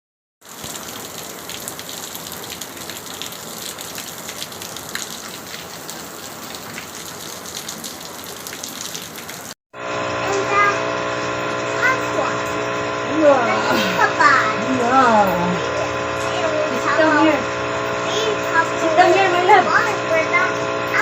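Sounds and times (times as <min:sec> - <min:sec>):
heavy rain falling: 0:00.4 - 0:09.6.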